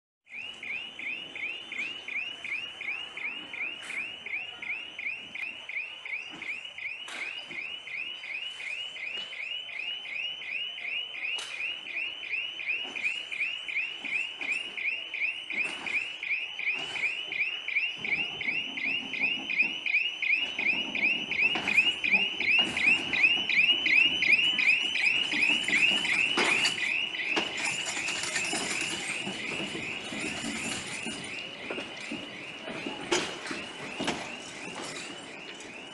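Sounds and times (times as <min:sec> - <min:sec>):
train coaches rumbling and clattering: 0:20.4 - 0:35.9.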